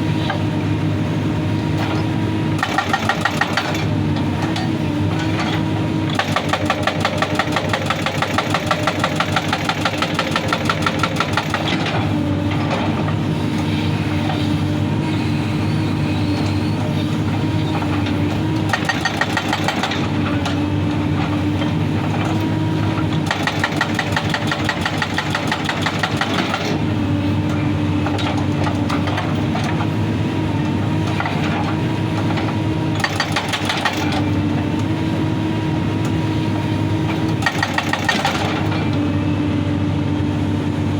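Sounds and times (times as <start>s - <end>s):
excavator engine running: 0.0s - 40.9s
hydraulic rock breaker hammering: 1.8s - 13.2s, 17.4s - 30.0s, 30.7s - 35.0s, 37.0s - 39.1s.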